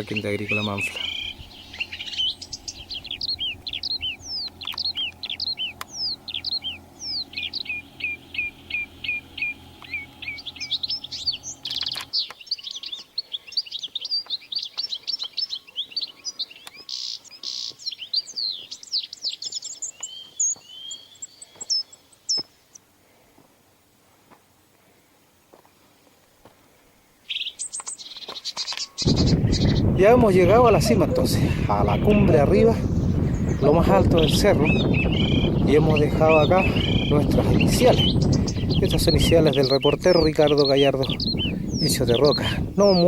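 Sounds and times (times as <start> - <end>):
low steady hum: 0.0 - 12.2, 29.0 - 43.0
birds chirping: 0.0 - 22.8, 26.8 - 43.0.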